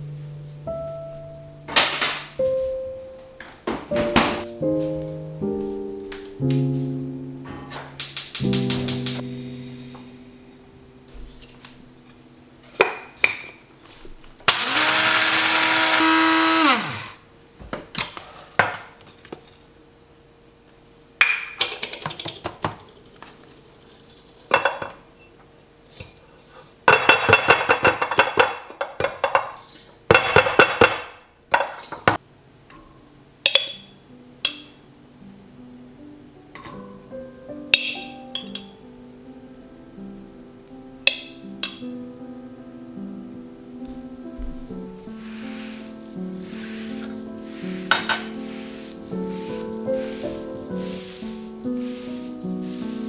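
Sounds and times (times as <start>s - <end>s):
kitchen appliance motor: 14.5s - 17.2s
kitchenware clinking: 47.8s - 48.7s.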